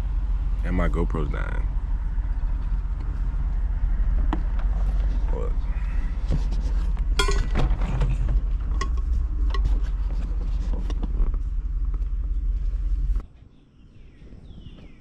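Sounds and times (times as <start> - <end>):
vehicle rumble from inside cabin: 0.0 - 13.2
clicks and rattles: 6.9 - 12.1.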